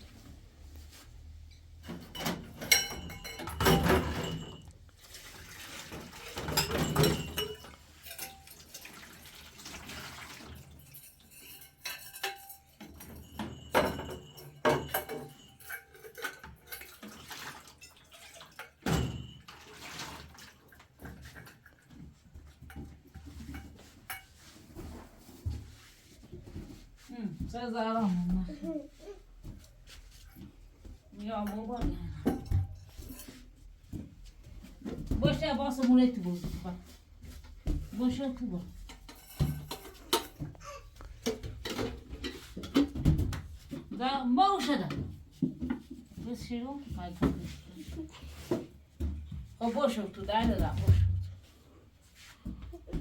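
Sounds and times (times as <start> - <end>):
dishes and cutlery clinking: 1.5 - 20.2, 20.8 - 25.4, 31.4 - 34.0, 37.7 - 43.9
running water: 5.0 - 11.3.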